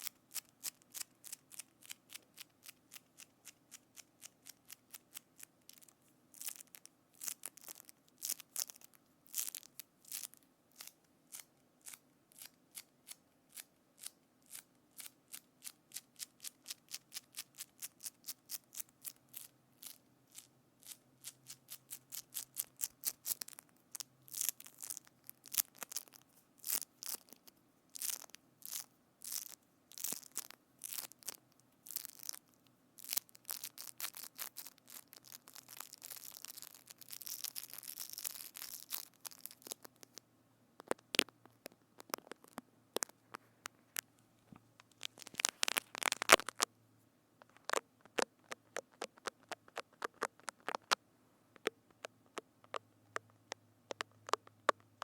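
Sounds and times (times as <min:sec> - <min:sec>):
crisp crackling clicks: 0:04.0 - 0:11.5, 0:16.4 - 0:40.2, 0:40.8 - 0:44.2, 0:44.8 - 0:46.7, 0:47.4 - 0:51.0, 0:51.6 - 0:55.0.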